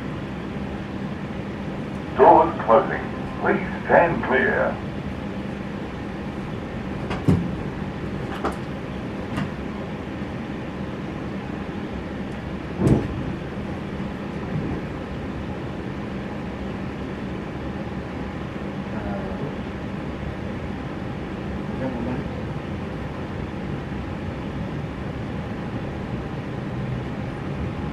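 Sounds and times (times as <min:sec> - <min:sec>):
train carriage hum: 0:00.0 - 0:27.9
sliding doors closing thump: 0:07.0 - 0:08.7, 0:09.3 - 0:09.6, 0:12.8 - 0:13.4.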